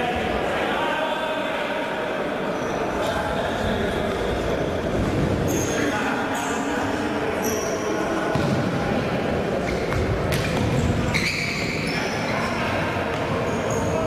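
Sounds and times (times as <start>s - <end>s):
echoing din of voices: 0.0s - 14.0s
shoes squeaking on court floor: 9.6s - 14.0s.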